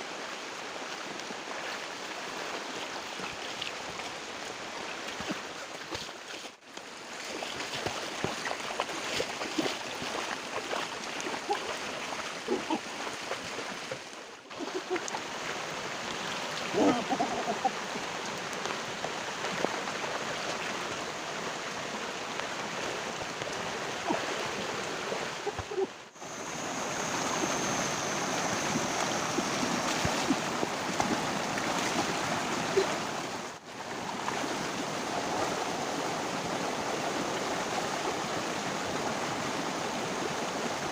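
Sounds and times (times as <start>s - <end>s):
river water rushing: 0.0s - 40.9s
small splashes and knocks: 5.0s - 15.2s, 28.7s - 33.4s.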